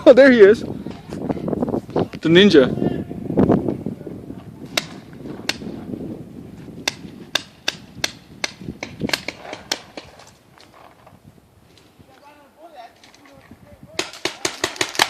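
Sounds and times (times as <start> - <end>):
paintball guns firing: 6.9 - 10.4, 13.9 - 15.0.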